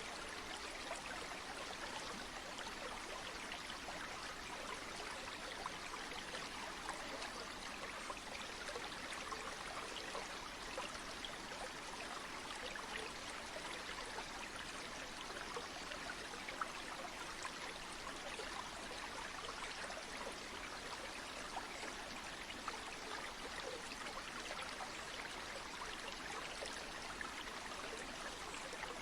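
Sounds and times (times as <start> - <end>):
flowing stream: 0.0 - 29.0.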